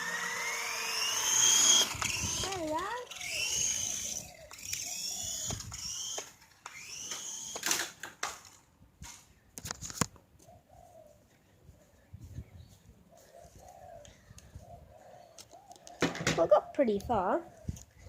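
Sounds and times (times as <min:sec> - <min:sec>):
small electric motor whining: 0:00.0 - 0:08.0.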